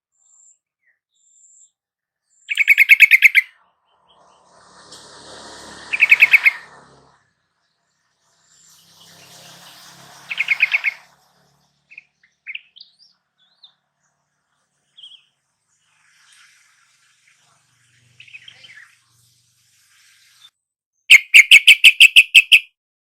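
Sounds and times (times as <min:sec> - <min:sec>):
bird calling and chirping: 0:01.1 - 0:04.5, 0:05.9 - 0:06.8, 0:10.2 - 0:13.8, 0:14.8 - 0:20.5, 0:21.1 - 0:22.7.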